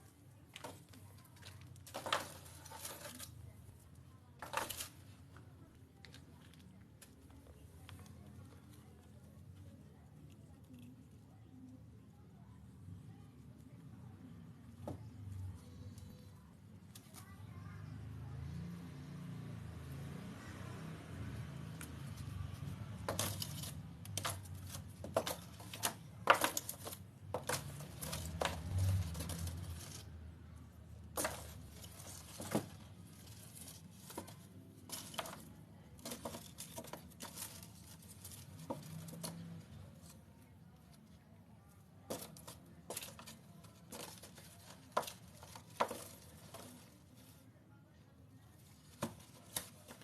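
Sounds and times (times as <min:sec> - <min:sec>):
cats scratching and tapping: 0:00.1 - 0:11.0, 0:20.8 - 0:30.2, 0:30.8 - 0:41.0, 0:42.0 - 0:47.3, 0:48.6 - 0:50.0.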